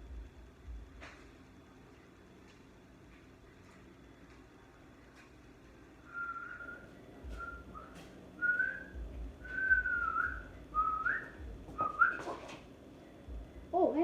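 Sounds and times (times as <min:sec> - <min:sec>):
person whistling a tune: 0:06.1 - 0:12.4.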